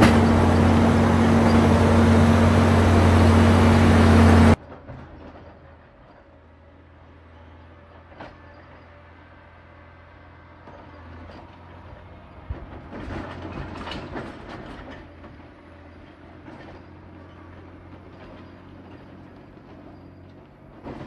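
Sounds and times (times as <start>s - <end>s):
diesel engine running: 0.0s - 4.6s
machine clattering and knocking: 12.5s - 15.4s.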